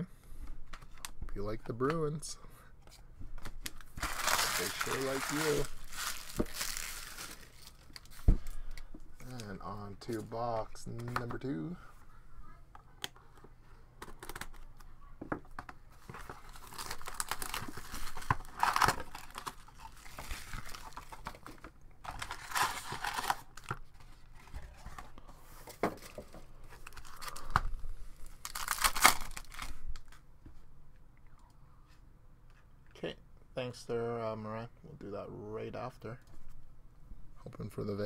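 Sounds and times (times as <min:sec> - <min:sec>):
plastic wrapping crinkling: 0:03.6 - 0:10.2, 0:16.0 - 0:23.8, 0:26.0 - 0:27.6, 0:28.2 - 0:30.2.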